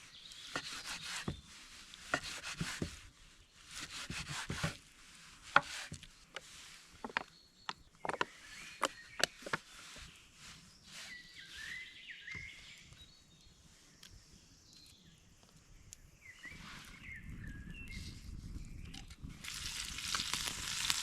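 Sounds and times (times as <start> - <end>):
songbird warbling chirps: 0.0 - 1.5, 7.0 - 19.0
forest ambience: 5.6 - 17.2.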